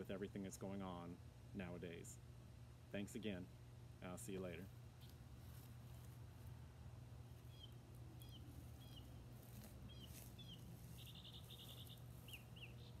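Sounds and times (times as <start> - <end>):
steady low hum: 0.0 - 13.0
faint bird chirps: 7.3 - 13.0.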